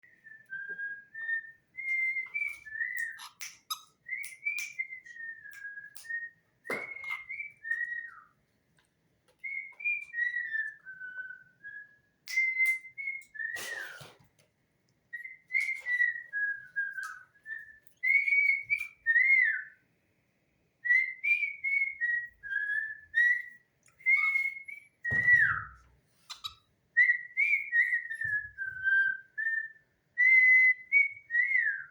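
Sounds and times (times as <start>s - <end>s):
person whistling a tune: 11.8s - 14.1s.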